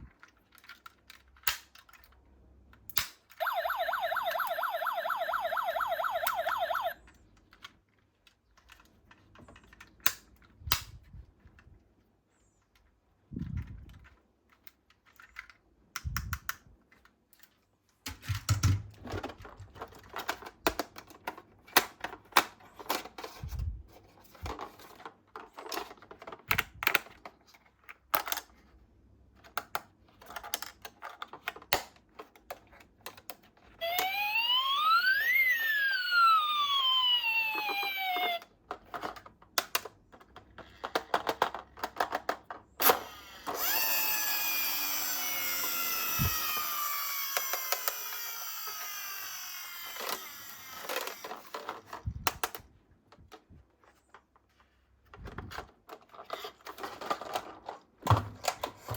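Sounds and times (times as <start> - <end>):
toy cars clicking and clattering: 0.0 - 11.7, 12.6 - 58.9
siren wailing: 3.4 - 7.0, 33.8 - 38.5.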